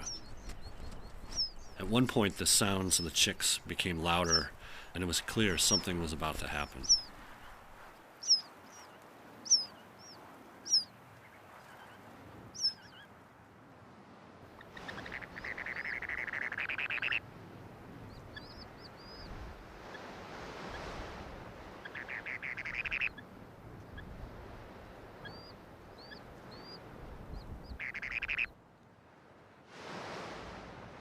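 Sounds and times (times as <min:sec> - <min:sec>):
sandpipers peeping: 0:00.0 - 0:13.1, 0:14.5 - 0:17.2, 0:18.0 - 0:21.0, 0:21.7 - 0:24.2, 0:25.1 - 0:28.5.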